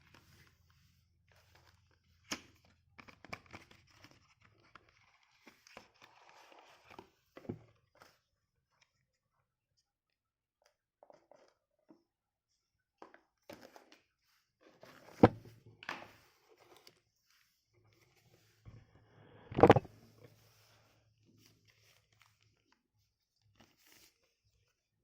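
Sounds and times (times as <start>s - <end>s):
box and packaging tapping and rustling: 14.8s - 16.0s.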